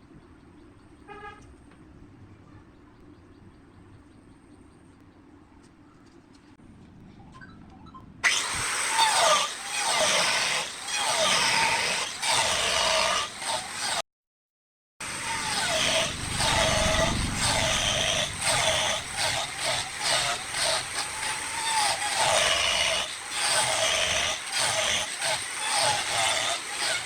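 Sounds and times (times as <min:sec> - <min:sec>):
wood lathe cutting wood: 0:08.2 - 0:14.0, 0:15.0 - 0:27.0.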